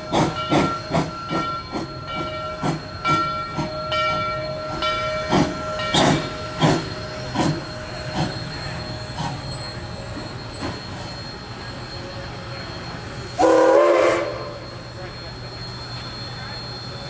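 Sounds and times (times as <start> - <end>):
steam exhaust chuffing: 13.3 - 15.1
steam locomotive whistle: 13.3 - 15.2.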